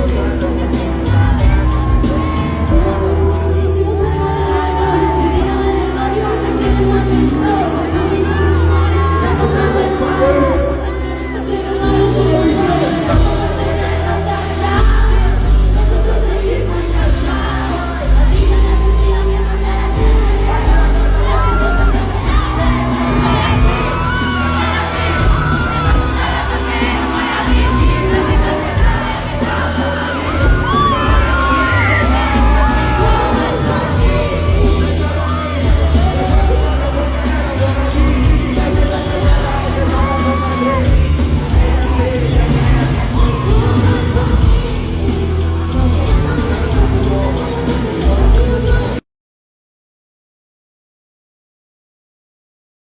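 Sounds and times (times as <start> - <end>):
crowd voices and whoops: 0.0 - 49.0
loud live concert music: 0.0 - 49.0
person singing: 0.0 - 49.0
song with heavy bass over pa: 0.0 - 49.0.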